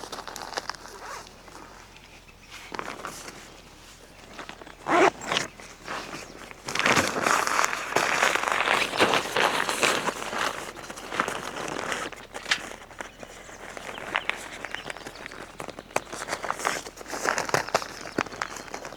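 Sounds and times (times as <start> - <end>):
tent fabric rustling: 0.0 - 1.9, 2.5 - 18.9
zipper moving: 0.8 - 1.8, 4.6 - 10.4.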